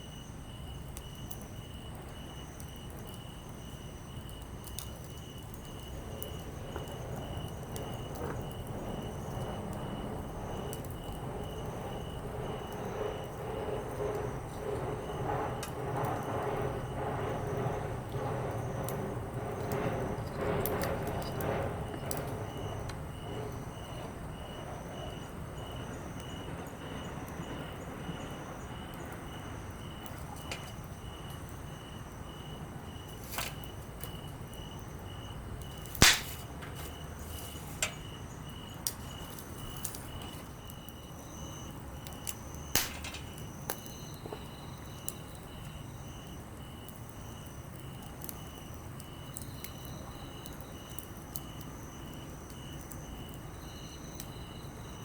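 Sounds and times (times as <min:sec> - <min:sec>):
insects chirping: 0:00.0 - 0:55.0
campfire crackling: 0:00.1 - 0:55.0
sharp fire pops: 0:35.6 - 0:40.1, 0:42.7 - 0:43.8.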